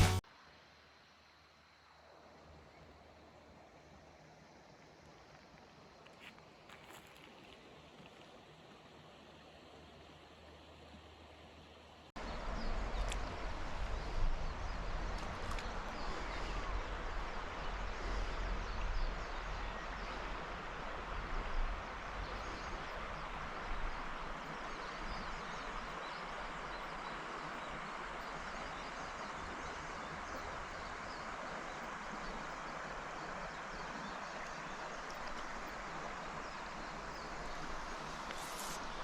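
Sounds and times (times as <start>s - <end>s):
flowing river water: 0.0s - 39.0s
wind rumble on microphone: 12.2s - 26.9s.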